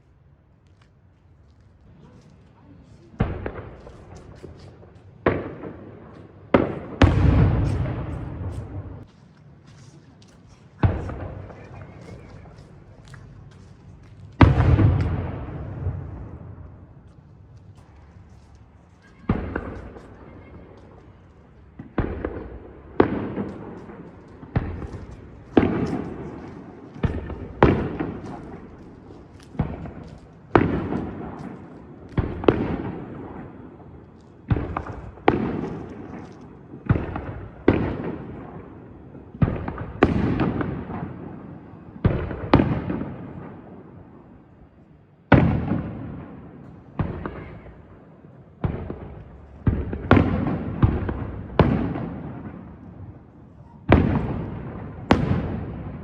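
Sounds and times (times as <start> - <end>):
fireworks bangs and crackle: 1.4 - 56.0.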